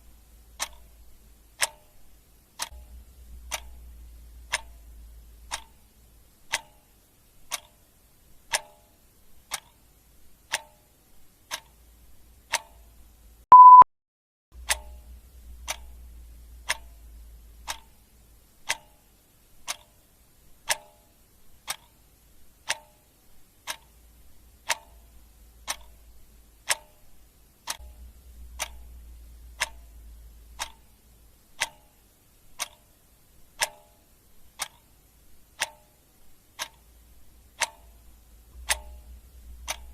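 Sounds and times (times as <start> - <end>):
clock ticking: 0.0 - 13.8, 14.6 - 39.9
short high electronic beep: 13.5 - 13.8.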